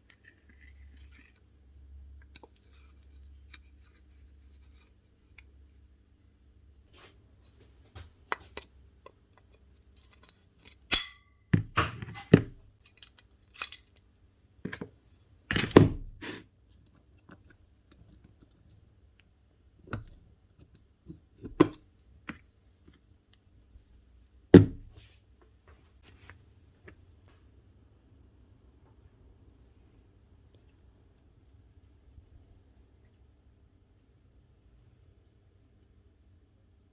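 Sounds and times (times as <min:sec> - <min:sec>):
metal and plastic parts clinking: 0:09.5 - 0:14.1.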